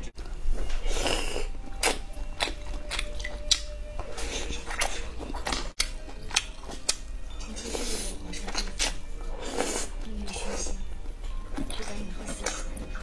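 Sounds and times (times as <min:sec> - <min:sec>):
person chewing crunchy food: 0:00.6 - 0:10.6.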